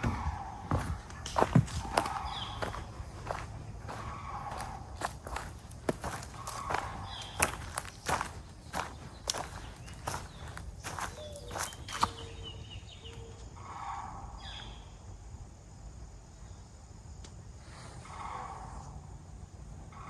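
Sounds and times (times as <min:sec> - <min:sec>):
footsteps crunching: 0:00.0 - 0:12.4
distant cranes calling: 0:00.0 - 0:15.2, 0:17.7 - 0:20.0.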